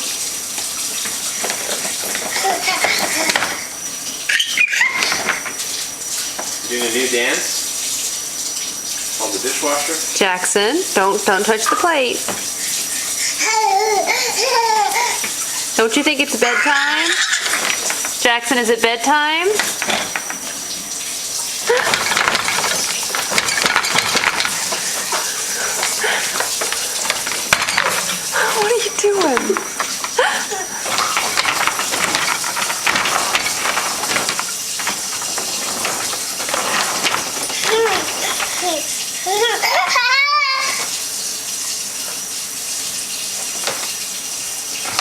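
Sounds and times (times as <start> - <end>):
water rushing: 0.0 - 45.0
child squealing: 4.3 - 5.3, 13.3 - 15.3, 16.4 - 17.6, 37.6 - 40.9
dishes clinking: 19.6 - 20.5, 21.7 - 38.6.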